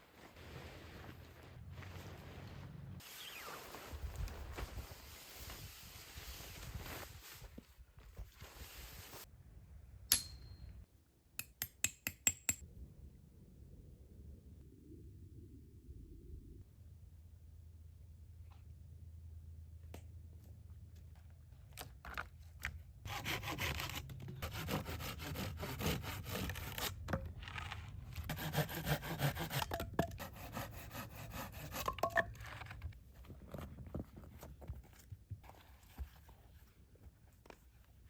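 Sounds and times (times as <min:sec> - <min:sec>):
hand saw cutting wood: 0:23.1 - 0:27.2, 0:28.3 - 0:32.1.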